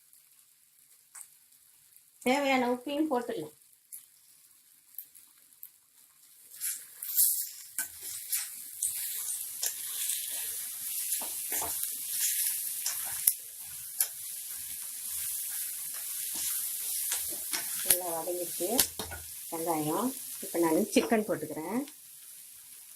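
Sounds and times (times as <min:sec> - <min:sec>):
onions sizzling in oil: 0:00.0 - 0:22.9
spatula stirring and scraping: 0:06.0 - 0:21.3.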